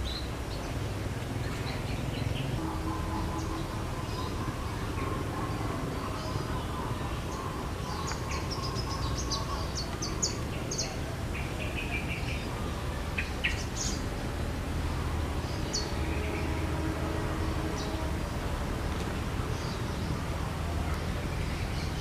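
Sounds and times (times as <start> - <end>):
small birds chirping: 0.0 - 14.2
low background noise: 0.0 - 22.0.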